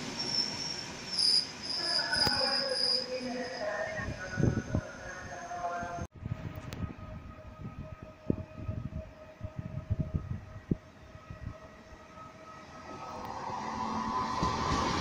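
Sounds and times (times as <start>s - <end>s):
train running noise: 0.0s - 15.0s
electric train high whine: 6.2s - 15.0s.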